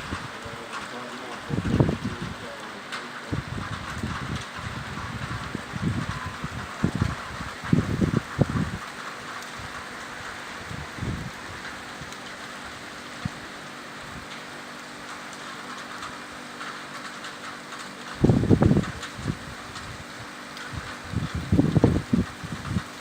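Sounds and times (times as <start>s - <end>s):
heavy rain falling: 0.0s - 23.0s
wind gusts on microphone: 1.3s - 2.5s, 3.2s - 13.4s, 18.1s - 23.0s.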